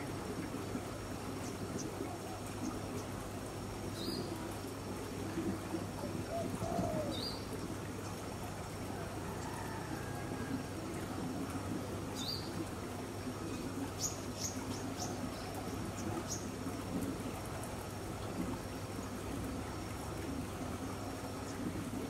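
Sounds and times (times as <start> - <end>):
bird rising call: 6.3 - 7.4.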